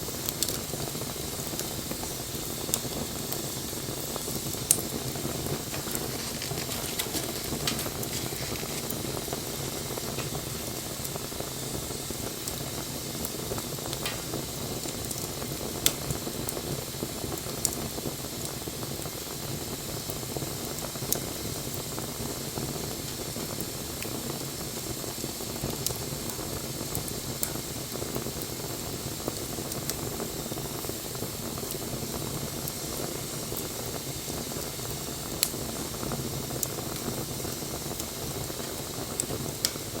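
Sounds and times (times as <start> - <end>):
hiss of bonfire flames: 0.0 - 40.0
burning wood popping: 0.1 - 17.9, 33.6 - 40.0.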